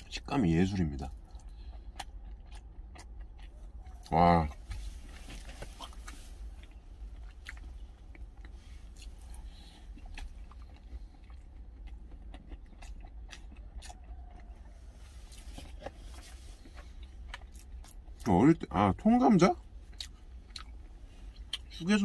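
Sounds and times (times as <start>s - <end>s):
steady low rumble: 0.0s - 22.0s
person chewing food: 1.0s - 18.3s, 19.5s - 21.8s.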